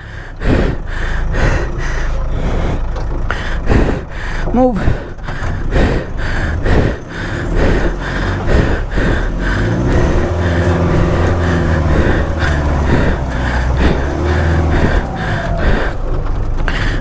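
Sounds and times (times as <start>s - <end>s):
engine revving under load: 0.0s - 17.0s
higher repeating pulse: 3.4s - 16.0s.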